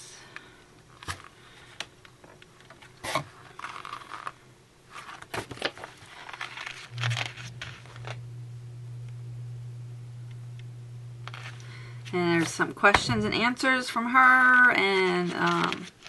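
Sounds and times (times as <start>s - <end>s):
low steady hum: 0.0s - 16.0s
paper pages rustling and flipping: 2.7s - 8.2s, 11.3s - 12.6s, 14.8s - 16.0s.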